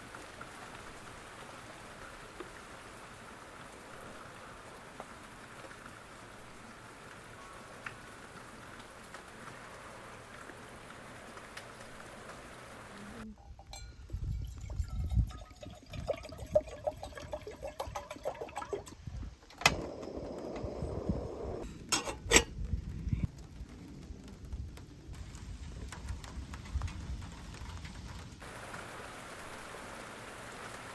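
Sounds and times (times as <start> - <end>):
rain falling: 0.0 - 13.3, 23.2 - 30.9
water boiling: 0.0 - 13.3, 14.2 - 21.6, 25.1 - 30.9
metal cookware clinking: 13.4 - 16.0, 21.9 - 22.5.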